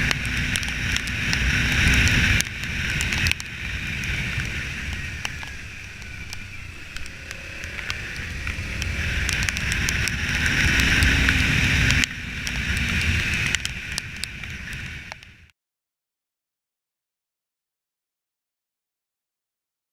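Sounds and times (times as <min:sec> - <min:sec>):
motorcycle engine and road rumble: 0:00.0 - 0:15.5
wind rushing over microphone: 0:00.0 - 0:15.5.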